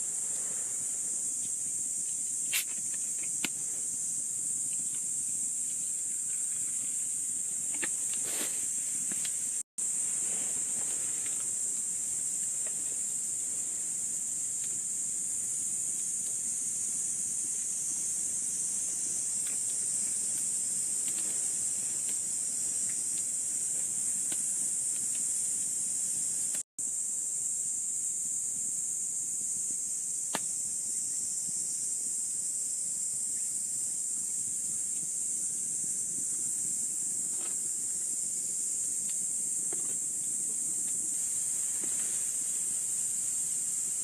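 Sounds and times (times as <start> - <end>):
insects chirring: 0.0 - 44.0.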